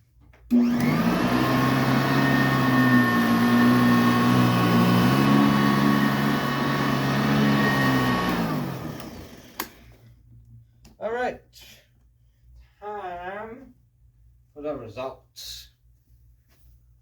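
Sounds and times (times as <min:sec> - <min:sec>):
vacuum cleaner motor whining: 0:00.5 - 0:10.0.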